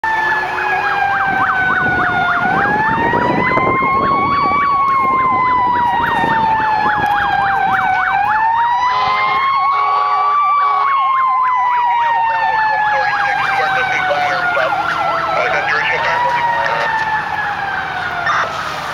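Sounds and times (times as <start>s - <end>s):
fast siren yelp: 0.0s - 18.9s
fire engine siren wail: 0.0s - 18.9s
horn blasts: 8.9s - 11.0s.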